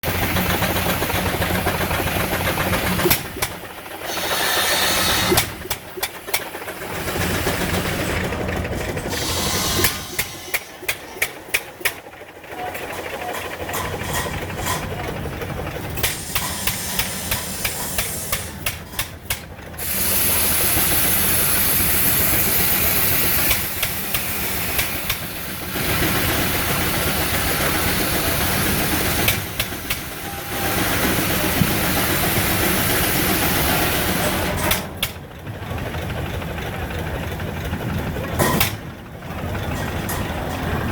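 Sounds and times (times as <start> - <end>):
steam engine hissing: 0.0 - 40.9
loud high-pitched steam hiss: 3.9 - 8.1, 9.1 - 10.8, 16.0 - 18.8, 19.8 - 34.8.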